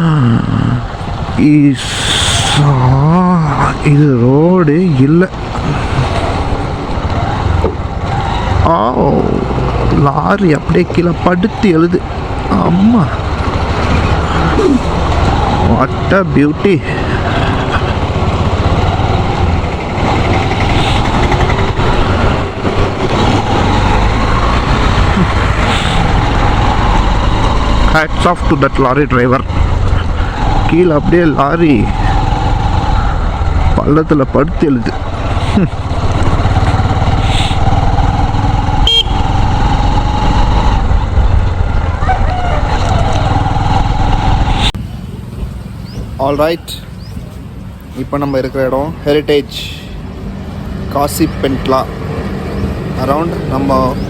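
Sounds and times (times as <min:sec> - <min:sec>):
motorcycle engine running: 0:00.0 - 0:44.8
road noise: 0:00.0 - 0:54.0
wind noise: 0:12.0 - 0:44.8.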